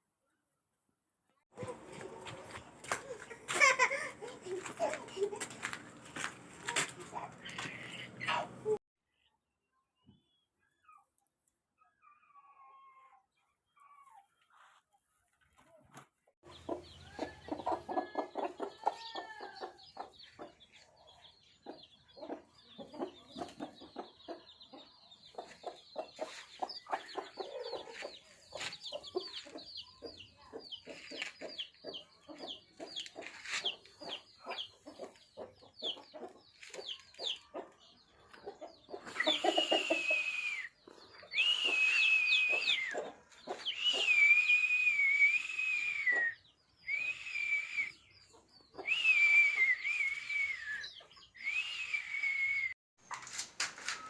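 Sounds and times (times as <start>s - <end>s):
chickens clucking: 1.6s - 8.8s, 15.6s - 51.9s
loud high whistling tone: 39.2s - 43.0s, 43.7s - 48.0s, 48.9s - 52.8s.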